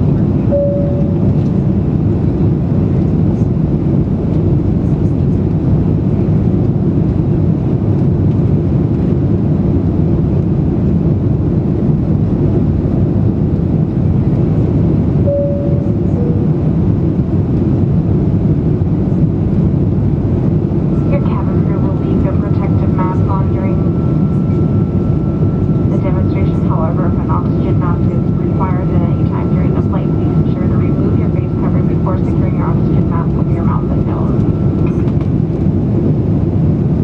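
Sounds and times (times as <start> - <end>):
jet engines roaring in cabin: 0.0 - 37.0
brief cabin tone: 0.5 - 1.4, 15.3 - 16.5.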